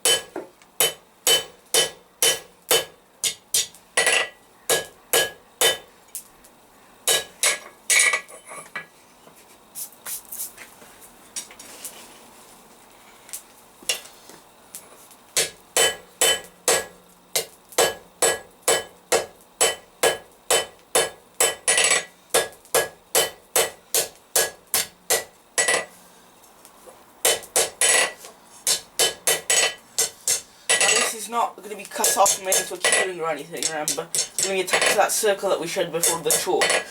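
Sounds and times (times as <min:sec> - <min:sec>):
hammer striking hot steel on anvil: 0:00.0 - 0:05.9, 0:07.1 - 0:08.3, 0:15.4 - 0:25.9, 0:27.2 - 0:31.1, 0:32.0 - 0:35.0, 0:36.0 - 0:36.9.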